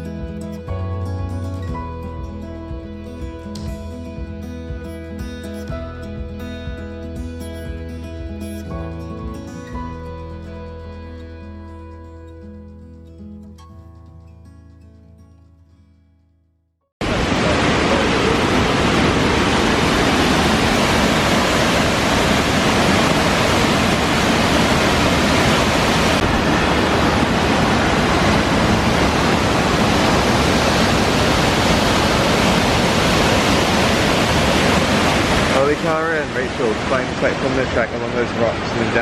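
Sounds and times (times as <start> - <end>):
waterfall rushing: 17.0 - 39.0.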